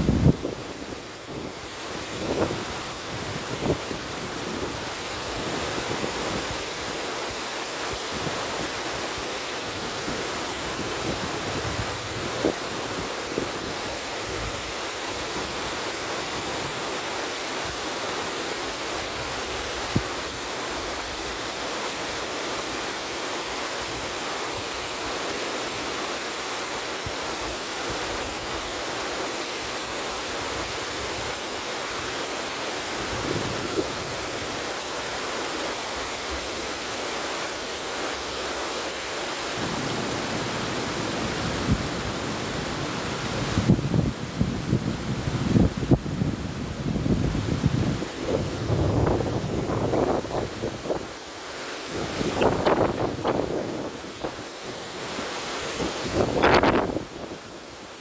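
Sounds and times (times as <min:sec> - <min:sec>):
river water rushing: 0:00.0 - 0:58.0
wind: 0:00.0 - 0:58.0.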